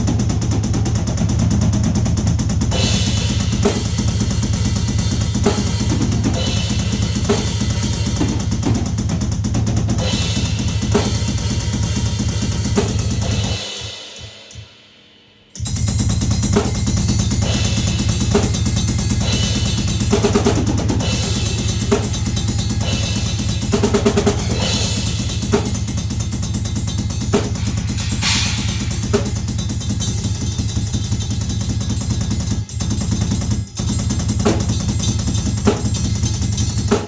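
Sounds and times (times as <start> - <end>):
drum-heavy music: 0.0 - 37.0.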